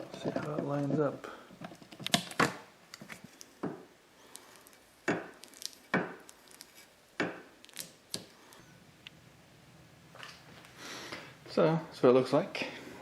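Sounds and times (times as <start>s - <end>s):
metal parts knocking and clunking: 0.0s - 2.5s.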